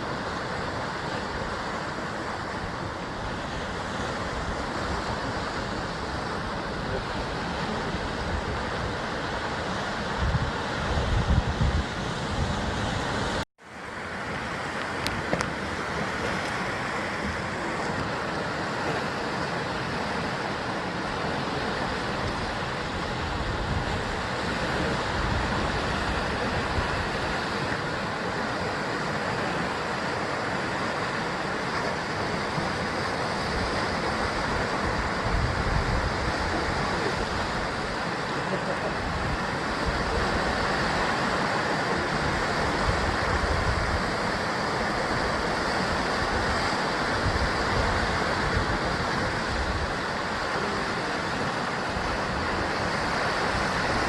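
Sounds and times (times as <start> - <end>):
wind rumble on microphone: 0.0 - 13.4, 14.7 - 54.0
sea surf on rocks: 0.0 - 54.0.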